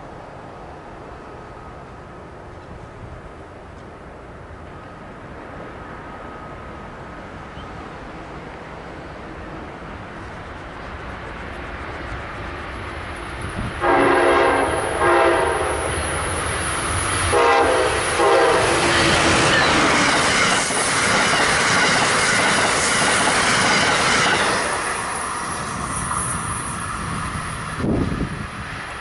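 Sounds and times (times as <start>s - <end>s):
train wheels rushing on rails: 0.0s - 29.0s
train horn blasts: 13.8s - 16.2s, 17.3s - 19.4s.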